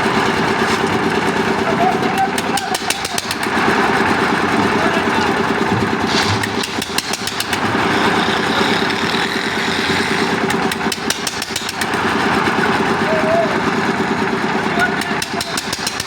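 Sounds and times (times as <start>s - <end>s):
concrete mixer engine running: 0.0s - 16.0s
sharp clicks: 10.4s - 12.0s.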